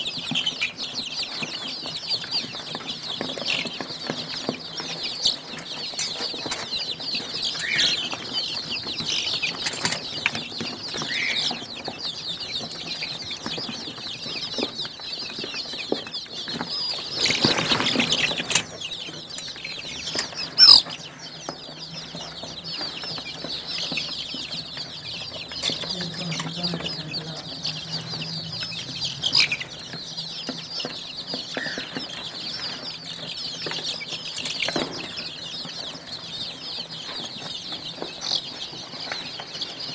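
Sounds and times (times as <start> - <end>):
chicks peeping: 0.0 - 39.9
rustling: 12.6 - 21.5.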